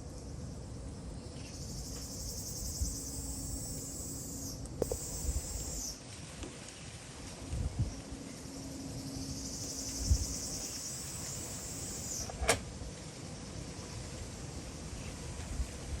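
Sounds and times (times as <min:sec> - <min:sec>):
high-pitched insect trill: 0:01.4 - 0:06.0, 0:08.5 - 0:12.3.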